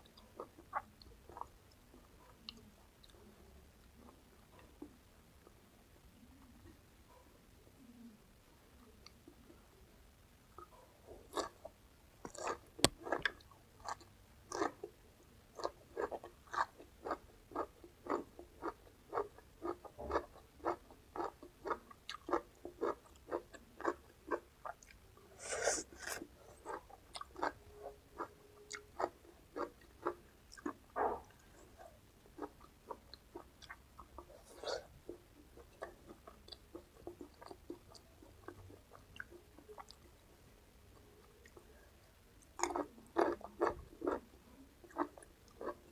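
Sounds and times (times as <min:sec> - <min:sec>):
crunchy chewing of raw vegetables: 0:10.6 - 0:40.2, 0:42.4 - 0:45.9.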